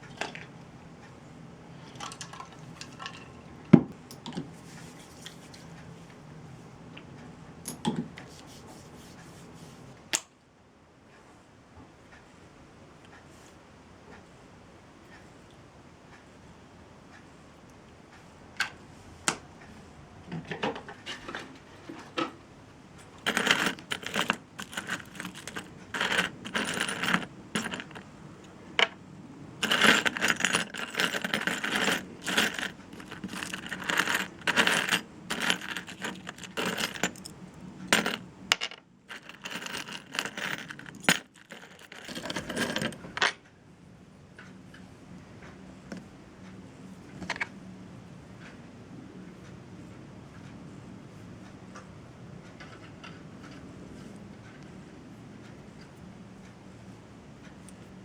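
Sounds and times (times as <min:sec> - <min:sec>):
small hard objects clinking: 0:23.2 - 0:28.1, 0:29.6 - 0:37.3, 0:37.9 - 0:38.2, 0:39.1 - 0:42.9.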